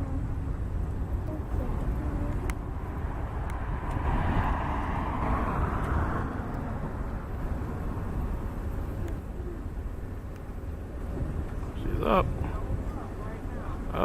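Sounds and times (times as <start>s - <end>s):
low rumble: 0.0s - 14.0s
jet engine roar: 2.4s - 11.8s.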